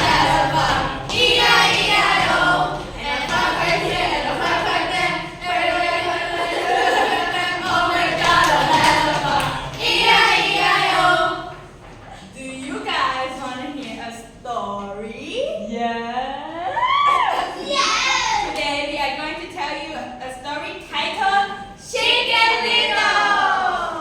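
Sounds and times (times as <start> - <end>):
group singing without instruments: 0.0 - 11.8, 21.9 - 24.0.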